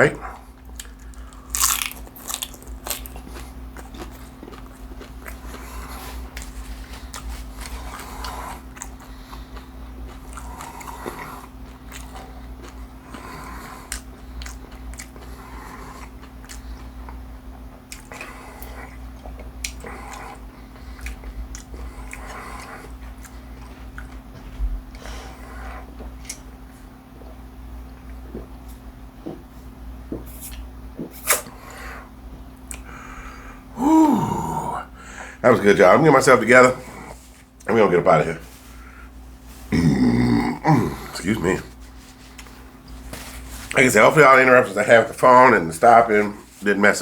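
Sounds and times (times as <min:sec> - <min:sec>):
crunchy biting and chewing: 0:00.6 - 0:17.2.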